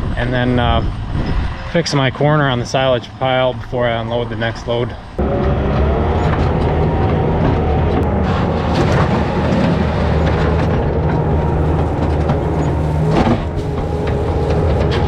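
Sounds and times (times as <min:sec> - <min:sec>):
clattering and rattling: 0:05.2 - 0:15.0
skid steer engine running: 0:05.2 - 0:15.0.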